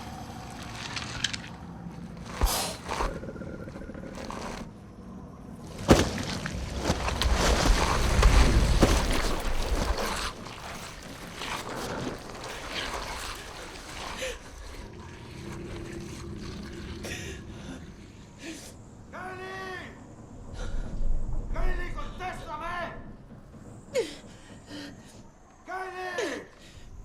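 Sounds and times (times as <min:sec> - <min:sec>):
deep rumble: 0:00.0 - 0:19.0, 0:20.0 - 0:25.3
wind: 0:00.0 - 0:27.0
rushing water: 0:05.6 - 0:17.1.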